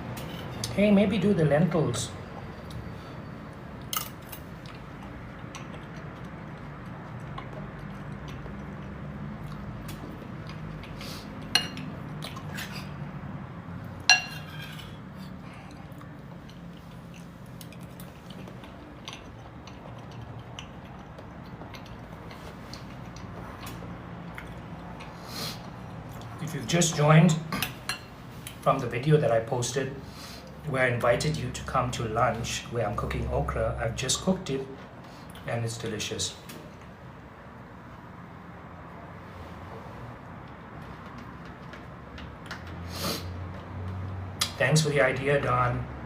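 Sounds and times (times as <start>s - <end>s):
cutlery clinking on plate: 14.1s - 15.0s.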